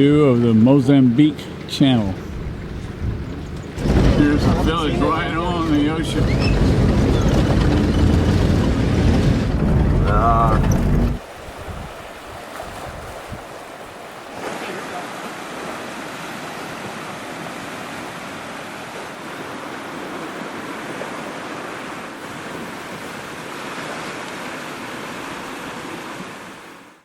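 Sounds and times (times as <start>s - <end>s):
ocean surf washing in: 1.8s - 13.9s
wind buffeting microphone: 2.2s - 13.5s.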